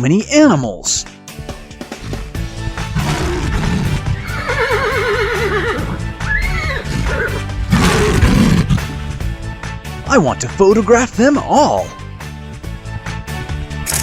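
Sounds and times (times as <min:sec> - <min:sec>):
background music: 0:00.0 - 0:14.0
horse whinny: 0:02.0 - 0:09.0.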